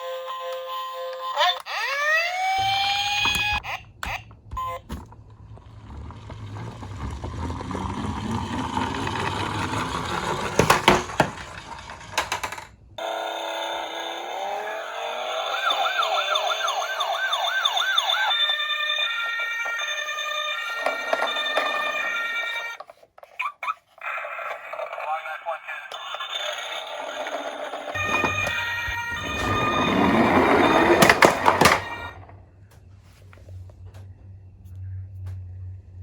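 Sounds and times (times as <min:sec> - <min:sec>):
toy car rolling on plastic: 0:05.2 - 0:32.4
electronic ambulance siren: 0:13.0 - 0:22.8, 0:26.0 - 0:32.4.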